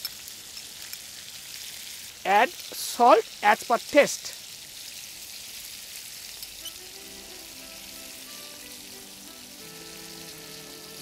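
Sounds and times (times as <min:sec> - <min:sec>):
tomatoes sizzling in oil: 0:00.0 - 0:11.0
soft background music: 0:06.6 - 0:11.0.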